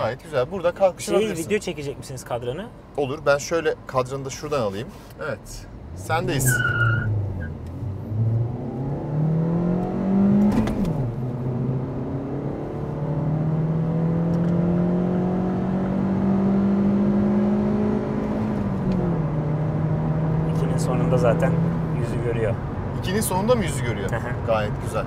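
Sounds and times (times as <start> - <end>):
car engine accelerating: 5.5 - 25.0.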